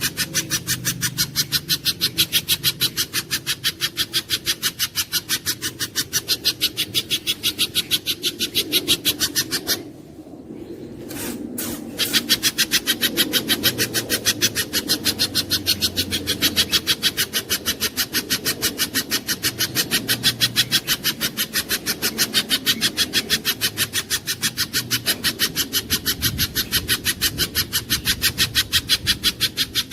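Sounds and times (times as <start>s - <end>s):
bird chipping calls: 0.0s - 29.9s.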